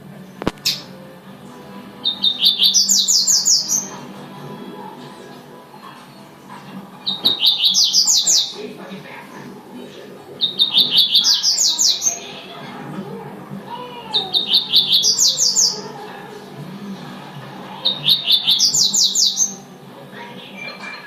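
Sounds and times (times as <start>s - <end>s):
bird singing high rapid notes: 1.9s - 4.2s, 7.0s - 8.7s, 10.4s - 12.6s, 14.2s - 15.9s, 17.8s - 19.8s.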